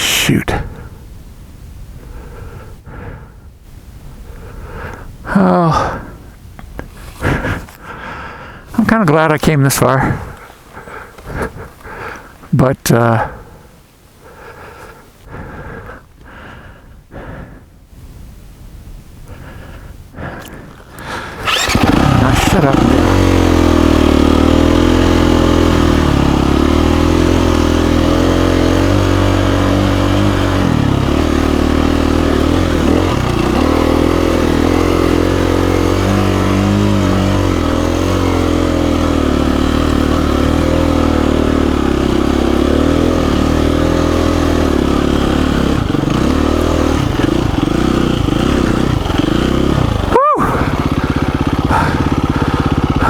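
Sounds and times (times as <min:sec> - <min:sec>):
dirt bike engine under load: 0:20.3 - 0:53.0.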